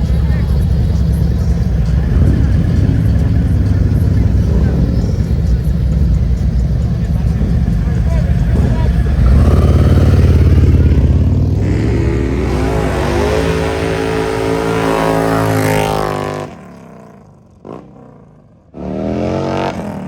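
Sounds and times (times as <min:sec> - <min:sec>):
motorcycle engine rumbling and revving: 0:00.0 - 0:20.0.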